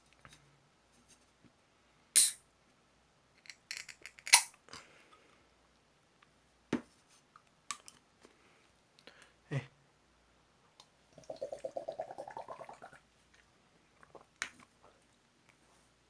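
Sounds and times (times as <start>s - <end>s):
can opening crack and hiss: 2.2s - 2.4s, 4.1s - 4.6s.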